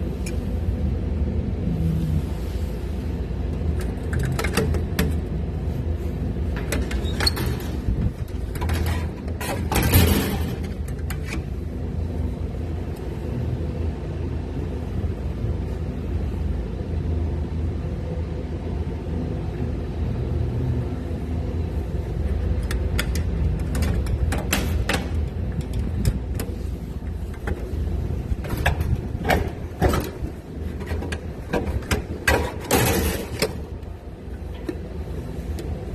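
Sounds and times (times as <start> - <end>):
air conditioner humming: 0.0 - 35.9
sharp clicks and knocks: 3.6 - 5.3, 22.5 - 26.6.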